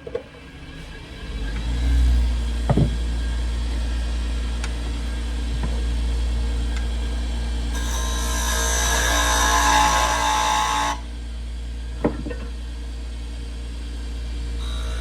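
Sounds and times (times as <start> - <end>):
wood lathe motor humming: 3.4 - 11.4, 14.6 - 15.0.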